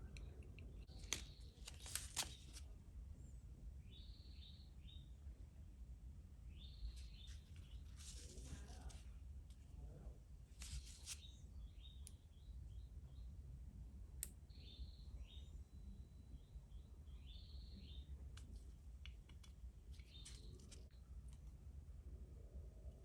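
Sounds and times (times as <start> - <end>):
faint bird chirping: 0.0 - 5.5, 6.4 - 9.1, 10.7 - 21.3
low steady hum: 0.0 - 23.0.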